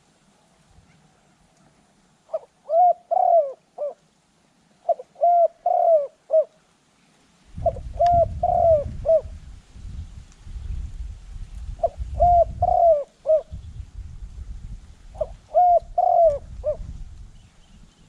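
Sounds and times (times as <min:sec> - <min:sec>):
dove cooing: 0:02.3 - 0:04.1, 0:04.8 - 0:06.6, 0:07.6 - 0:09.4, 0:11.8 - 0:13.6, 0:15.2 - 0:16.9.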